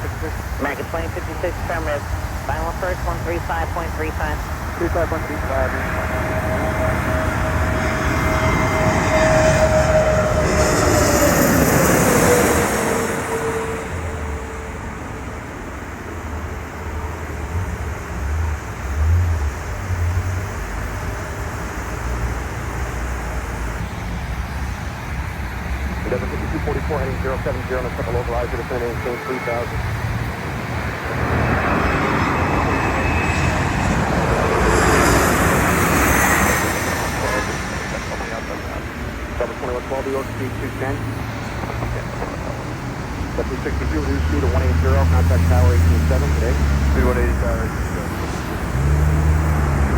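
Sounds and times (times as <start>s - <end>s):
jet airliner passing: 0.0s - 49.9s
engine whine falling in pitch: 4.6s - 15.6s.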